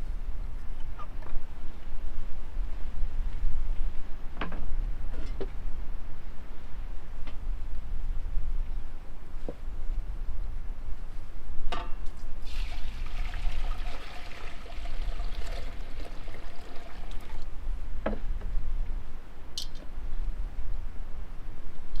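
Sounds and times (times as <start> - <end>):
liquid pouring: 12.4 - 17.5.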